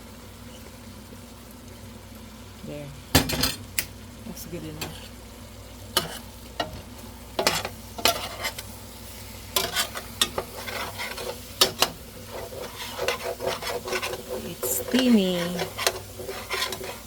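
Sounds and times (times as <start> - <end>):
low steady sizzle: 0.0 - 17.0
utensil clinking and scraping pot: 5.9 - 8.7, 9.5 - 17.0.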